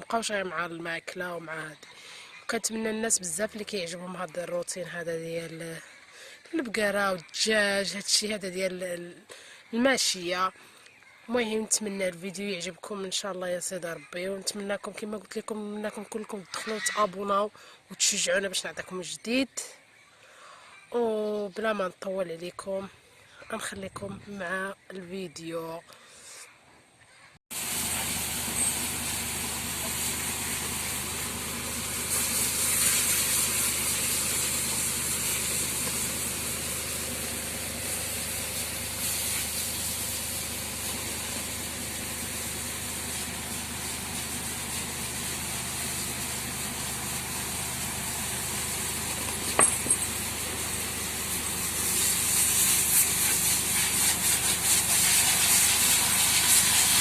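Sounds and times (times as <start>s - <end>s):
pressure washer motor running: 27.5s - 57.0s
pressure washer spray hissing: 27.5s - 57.0s.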